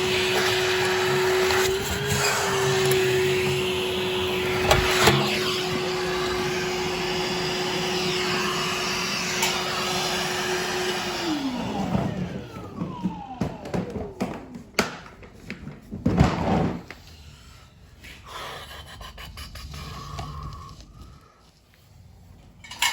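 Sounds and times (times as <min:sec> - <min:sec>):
vacuum motor running: 0:00.0 - 0:15.4.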